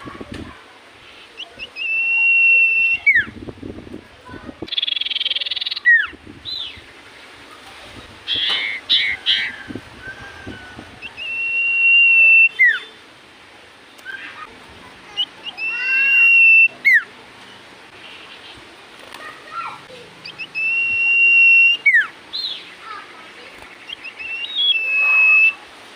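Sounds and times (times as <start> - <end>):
bird whistling: 1.6 - 3.3, 4.7 - 6.7, 11.0 - 13.0, 15.4 - 17.1, 20.2 - 22.6, 23.9 - 25.6
bird chirping: 4.7 - 6.9, 8.3 - 9.6, 11.0 - 13.0, 20.2 - 25.6.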